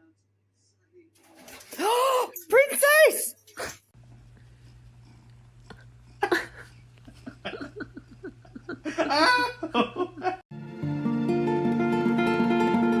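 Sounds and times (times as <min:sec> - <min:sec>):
person laughing: 0:06.2 - 0:10.4
strummed guitar music: 0:10.6 - 0:13.0.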